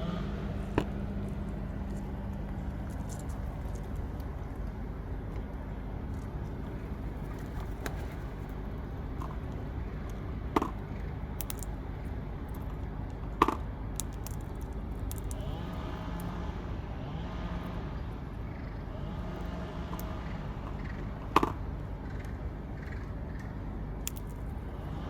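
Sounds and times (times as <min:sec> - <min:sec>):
distant road traffic rumble: 0:00.0 - 0:25.0
vehicle engine passing: 0:15.4 - 0:21.2.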